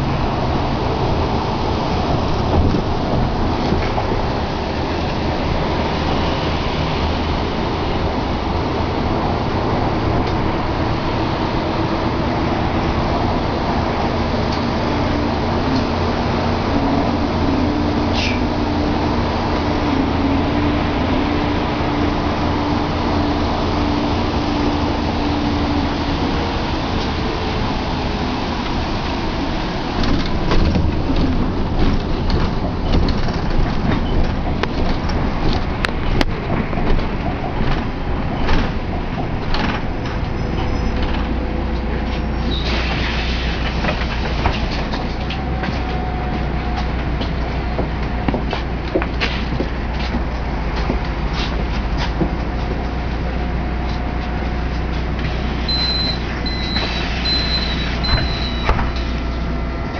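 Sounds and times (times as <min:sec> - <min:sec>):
motor vehicle rumble: 0:00.0 - 0:59.9
falling squeak: 0:40.4 - 0:41.1, 0:55.7 - 0:59.0.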